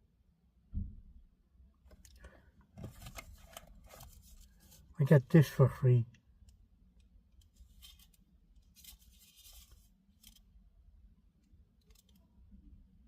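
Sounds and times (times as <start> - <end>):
faint rustles and clicks: 7.4 - 10.5.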